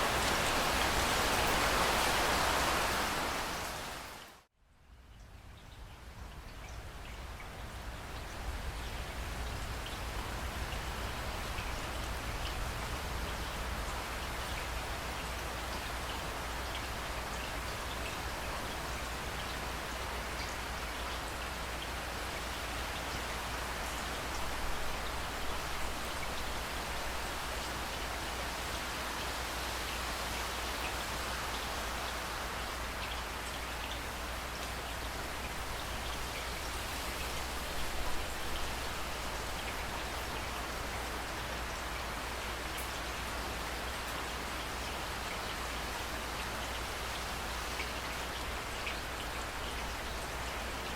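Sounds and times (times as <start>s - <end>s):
heavy rain falling: 0.0s - 4.5s
rain falling: 0.0s - 50.9s.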